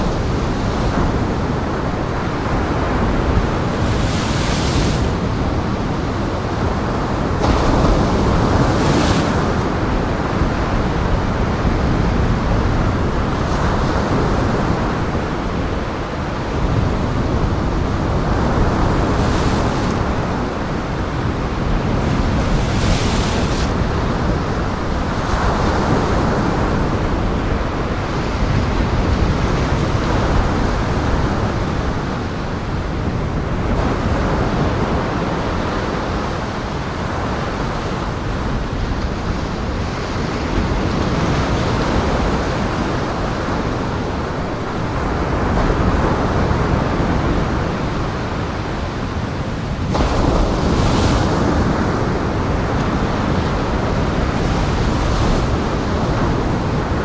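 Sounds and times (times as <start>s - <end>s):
wind: 0.0s - 57.0s
waves breaking: 18.0s - 25.0s.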